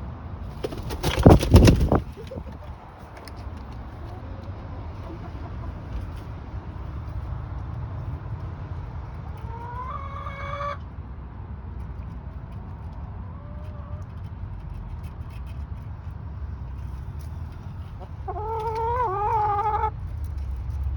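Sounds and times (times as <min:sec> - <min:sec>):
chicken calling: 0:18.0 - 0:19.9.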